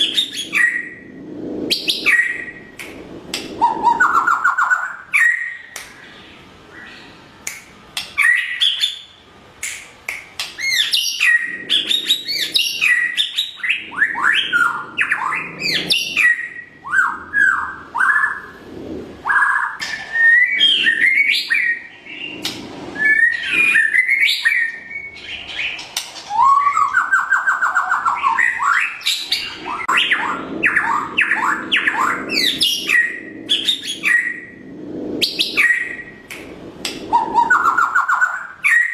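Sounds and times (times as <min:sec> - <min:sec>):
songbird singing: 0:01.7 - 0:18.5, 0:19.2 - 0:34.6, 0:35.2 - 0:38.9.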